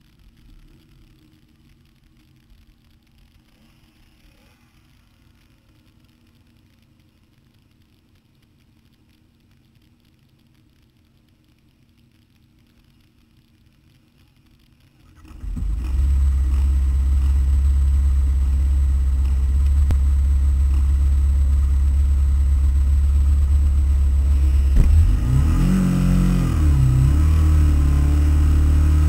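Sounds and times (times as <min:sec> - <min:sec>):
motorcycle engines idling: 0:15.9 - 0:25.2.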